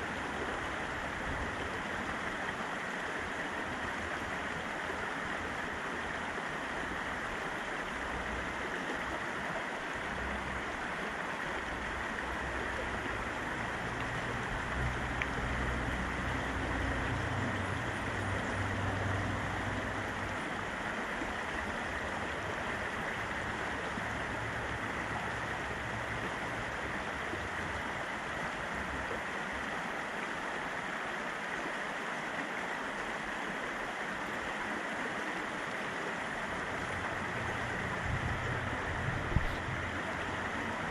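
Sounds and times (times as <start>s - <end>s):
river rushing: 0.0s - 40.9s
low rumble: 38.0s - 39.8s.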